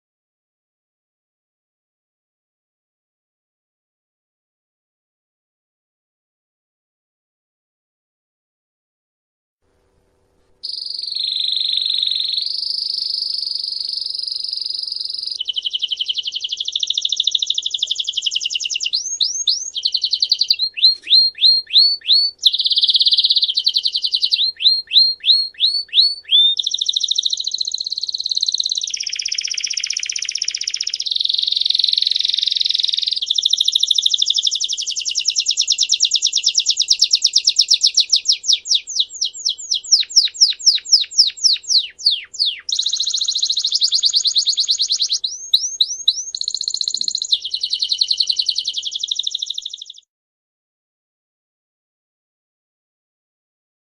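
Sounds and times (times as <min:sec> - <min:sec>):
songbird singing trills: 0:10.6 - 0:50.1.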